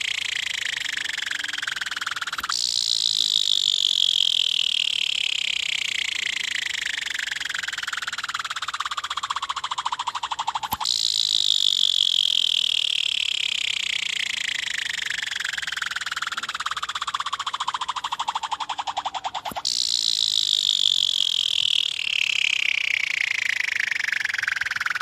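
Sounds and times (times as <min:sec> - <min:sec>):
fidget spinner whirring: 0:00.0 - 0:25.0
sharp click: 0:10.1 - 0:13.0, 0:19.0 - 0:22.2.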